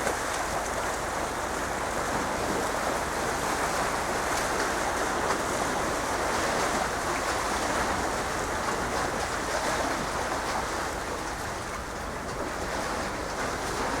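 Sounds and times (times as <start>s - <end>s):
water rushing: 3.0s - 14.0s.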